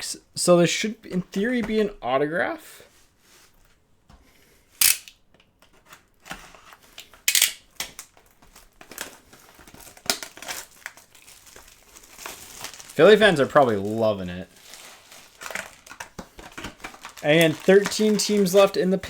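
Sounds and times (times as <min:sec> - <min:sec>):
card packaging torn and crinkled: 0:07.3 - 0:19.0.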